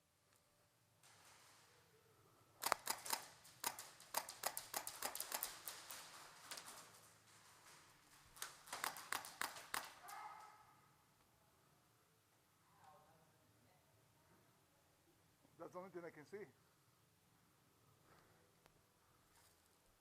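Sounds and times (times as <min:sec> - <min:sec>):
airsoft guns firing: 0:02.6 - 0:06.9, 0:08.3 - 0:10.1.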